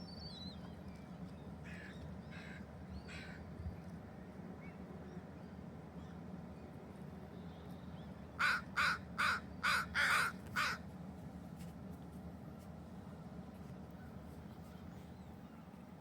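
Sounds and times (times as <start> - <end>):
crow cawing: 8.4 - 10.8.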